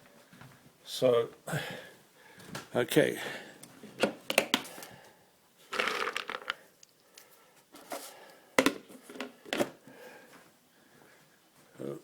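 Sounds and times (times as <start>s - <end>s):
hands rustling packaging: 5.7s - 7.0s.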